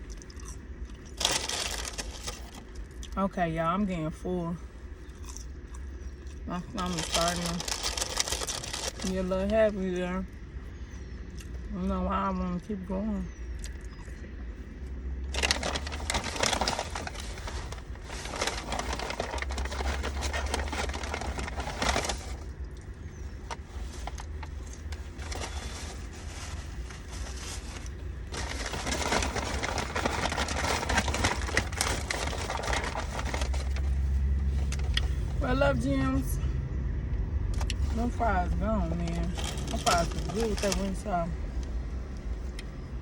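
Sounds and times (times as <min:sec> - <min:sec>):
paper food packaging crinkling: 0:00.0 - 0:03.2, 0:06.2 - 0:09.6, 0:15.3 - 0:35.4, 0:39.2 - 0:41.0.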